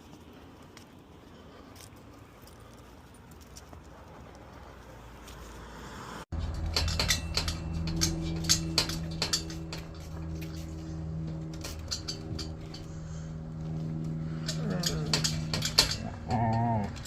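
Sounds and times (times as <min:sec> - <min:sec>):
rapid metallic clinking and jingling: 0:06.3 - 0:17.0
steady low hum: 0:06.3 - 0:17.0.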